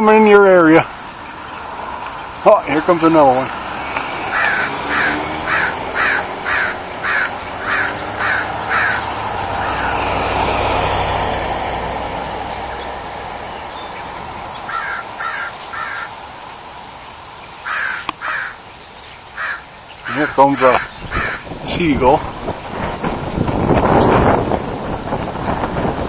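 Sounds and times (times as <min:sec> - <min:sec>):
birds giving harsh calls: 0:00.0 - 0:25.5
vehicle passing with low rumble: 0:00.5 - 0:17.8.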